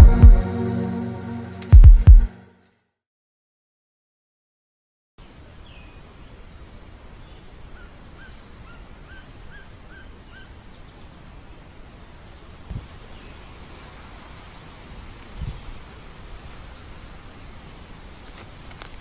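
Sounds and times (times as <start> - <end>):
bright hiss: 0.0 - 1.8, 12.7 - 19.0.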